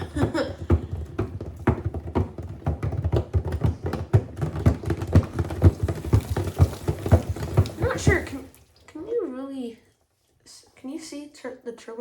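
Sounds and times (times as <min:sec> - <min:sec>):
object knocking in washer drum: 0:00.0 - 0:08.6.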